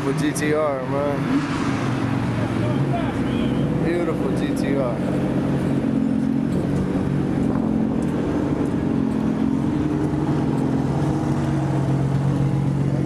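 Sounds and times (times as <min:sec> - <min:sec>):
car engines idling: 0:00.0 - 0:13.0.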